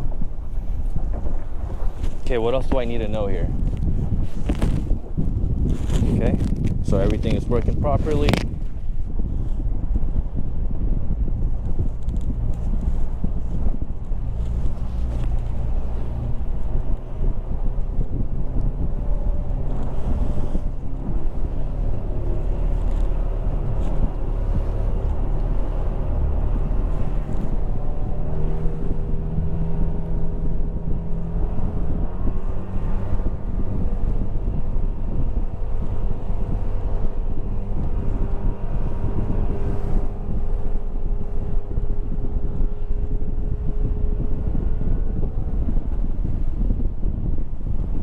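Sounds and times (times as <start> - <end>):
wind rumble on microphone: 0.0 - 48.0
outboard motor running: 13.0 - 28.5.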